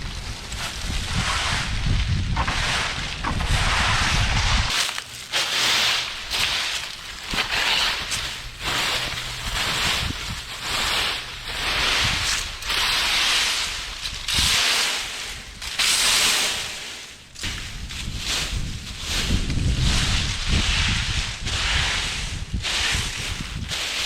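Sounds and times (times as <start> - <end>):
wind buffeting microphone: 0.0 - 4.8, 8.1 - 12.8, 17.4 - 23.9
rustling hissing noise: 0.0 - 24.0.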